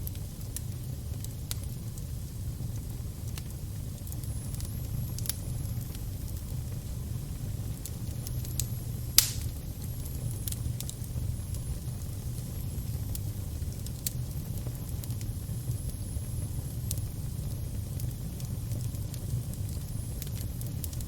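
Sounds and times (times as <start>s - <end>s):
fire crackling: 0.0s - 21.0s
low rumble of flames: 0.0s - 21.0s
loud pop: 9.2s - 9.6s.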